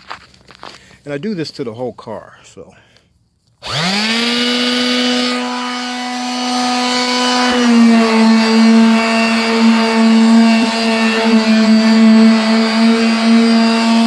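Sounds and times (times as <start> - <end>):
car polisher motor whine: 3.6 - 14.0.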